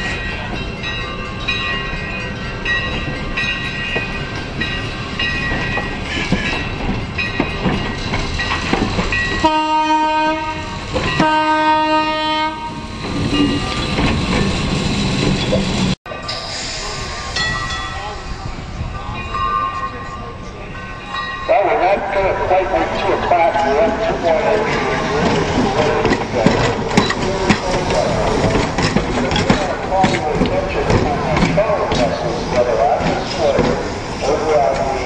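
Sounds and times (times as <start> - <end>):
trolley car rolling on track: 0.0 - 35.0
horn blasts: 9.4 - 12.8
trolley car wheels squealing: 23.6 - 35.0.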